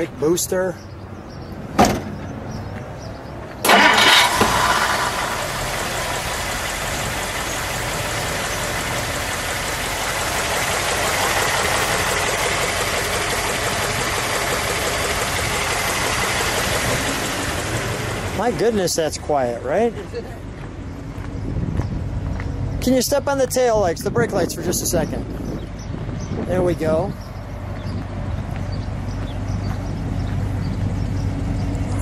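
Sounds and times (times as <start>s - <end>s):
car engine starting and idling: 3.6s - 20.0s.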